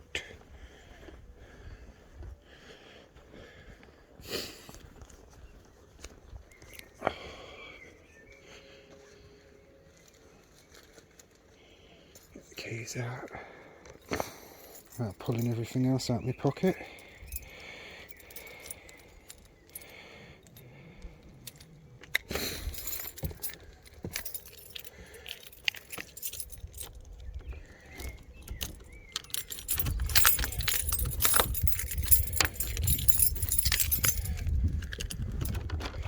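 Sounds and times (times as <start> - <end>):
keys jangling: 13.9 - 36.0.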